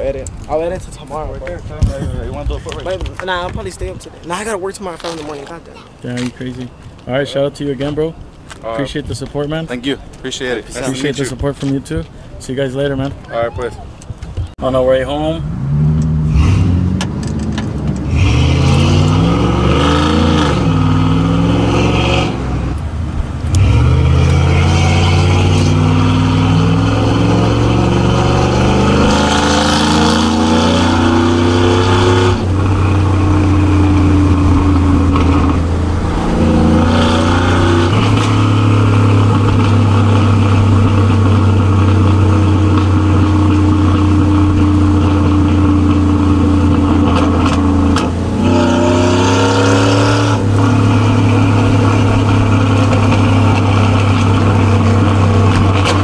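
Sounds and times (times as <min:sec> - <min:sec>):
truck engine accelerating: 0:14.9 - 0:56.0.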